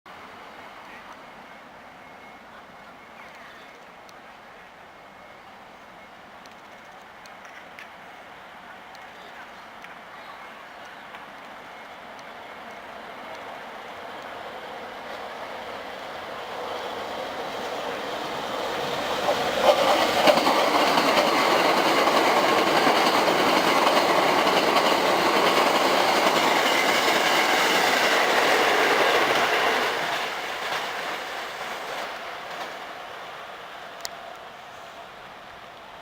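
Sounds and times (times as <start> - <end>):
electric train passing at speed: 0.1 - 36.0
wheels clattering over rail joints: 16.5 - 32.8.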